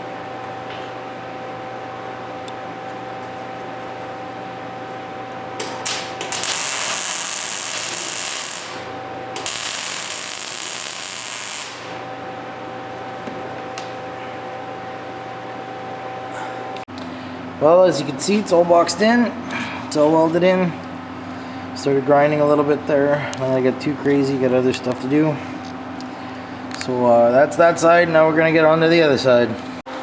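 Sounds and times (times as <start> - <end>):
steady shop hum: 0.0 - 30.0
welding arc hissing: 5.6 - 12.0
welding arc starts: 5.6 - 12.0.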